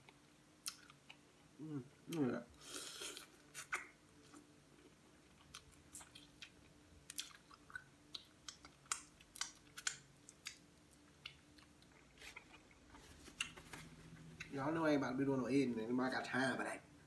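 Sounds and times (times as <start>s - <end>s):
wet mouth smacks and clicks: 7.1s - 10.6s.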